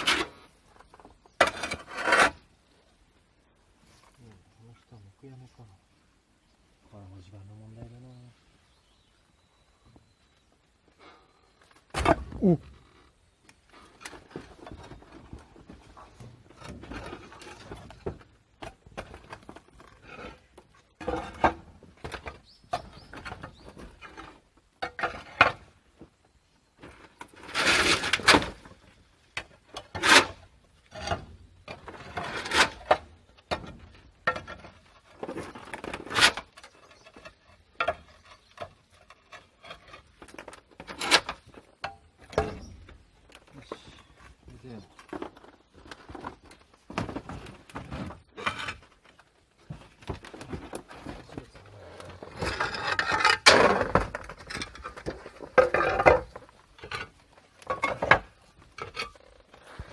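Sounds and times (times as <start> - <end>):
scraping: 26.8 - 59.9.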